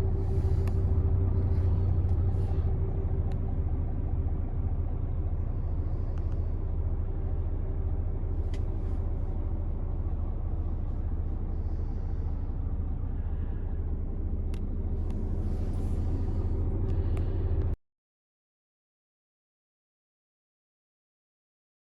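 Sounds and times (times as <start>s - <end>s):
diesel engine idling: 0.0s - 17.8s
faint clicks: 6.1s - 6.5s, 14.5s - 15.2s.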